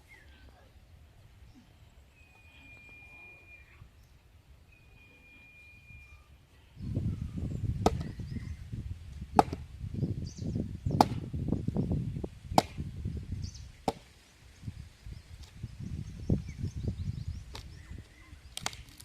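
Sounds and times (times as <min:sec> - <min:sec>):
sharp knocks: 0:09.4 - 0:09.6.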